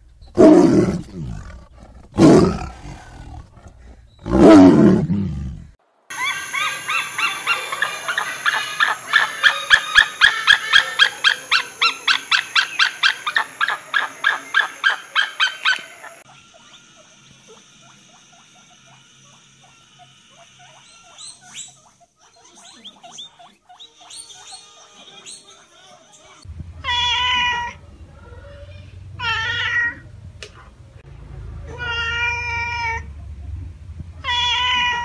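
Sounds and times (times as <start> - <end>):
faint high squeaks: 16.2 - 26.4.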